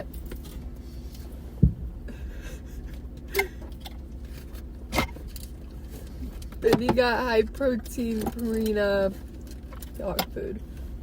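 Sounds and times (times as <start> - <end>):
low hum inside car: 0.0 - 11.0.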